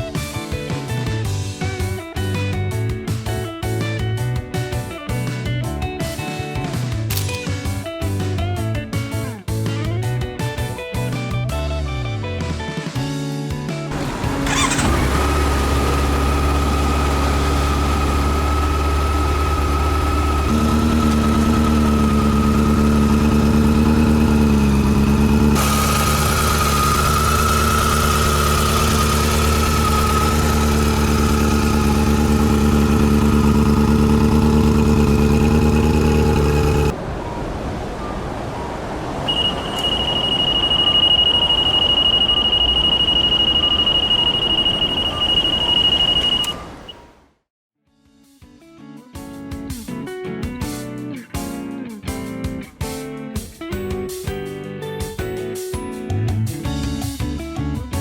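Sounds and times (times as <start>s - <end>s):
motorcycle engine idling: 13.9s - 37.0s, 40.8s - 46.5s.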